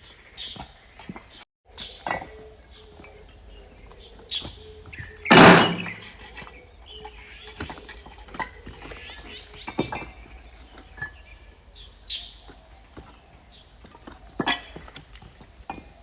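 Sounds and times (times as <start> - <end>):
debris knocking and clinking: 5.3 - 6.5.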